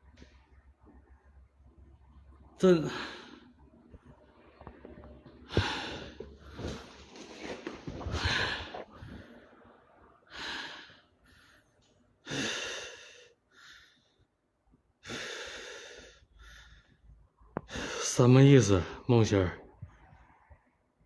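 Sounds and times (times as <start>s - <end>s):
man breathing heavily: 2.6s - 3.6s, 5.4s - 14.4s, 15.0s - 18.2s.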